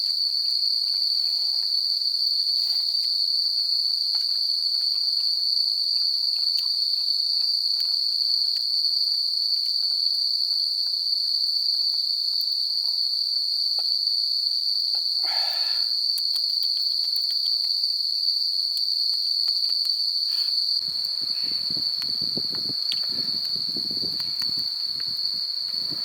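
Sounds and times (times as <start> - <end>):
insects shrilling: 15.2 - 17.9, 18.7 - 26.0
low crackling rustle: 20.8 - 26.0
faint clicks: 20.9 - 26.0.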